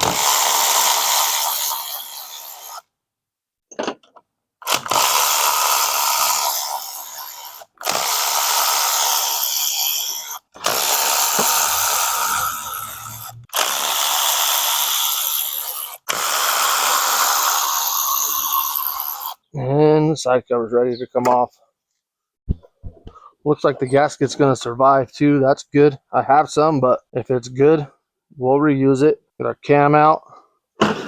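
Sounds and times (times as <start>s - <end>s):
power tool spinning out bolts: 0.0s - 2.8s, 4.6s - 19.4s.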